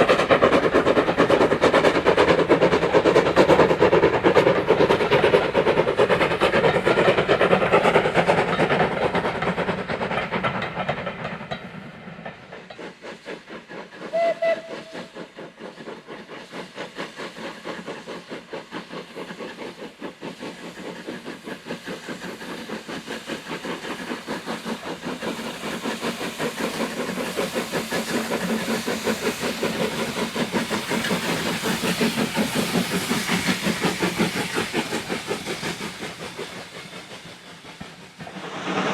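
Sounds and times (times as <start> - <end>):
steam locomotive exhaust beats: 0.0 - 38.9
steam whistle blast: 14.1 - 15.1.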